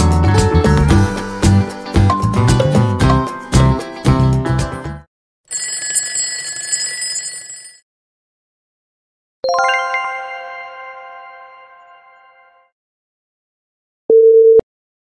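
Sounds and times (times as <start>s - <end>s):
bright chime: 9.5s - 12.5s
ringing bell effect: 9.5s - 12.7s.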